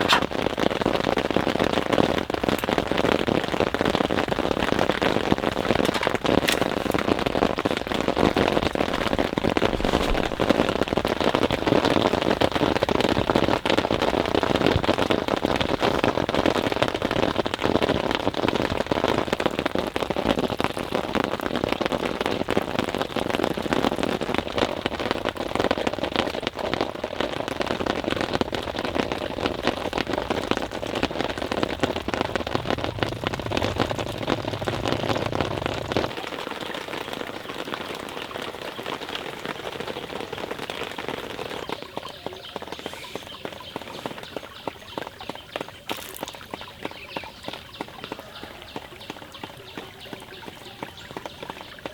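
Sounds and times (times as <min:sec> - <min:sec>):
rain pattering: 0:00.0 - 0:51.9
deep rumble: 0:29.6 - 0:36.2.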